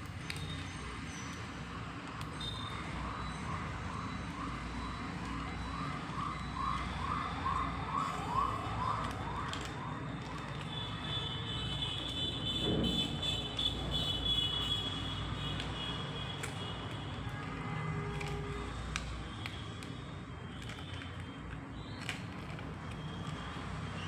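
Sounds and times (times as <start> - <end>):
toy siren whooping: 2.5 - 12.0.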